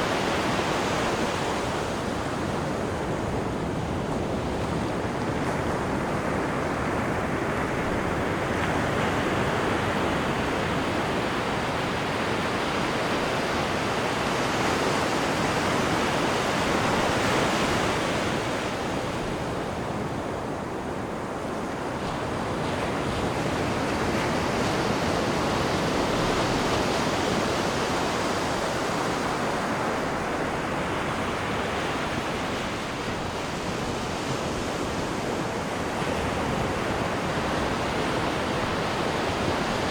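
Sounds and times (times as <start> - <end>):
sea water rushing in ship wake: 0.0 - 39.9.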